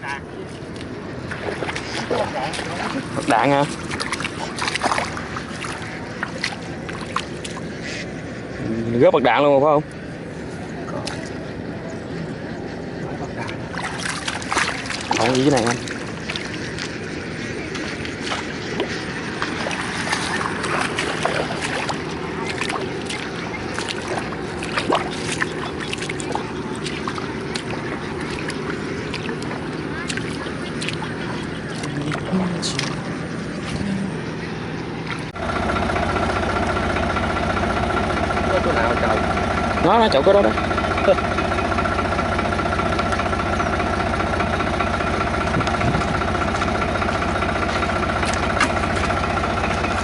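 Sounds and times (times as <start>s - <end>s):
tractor diesel engine idling: 0.0s - 50.0s.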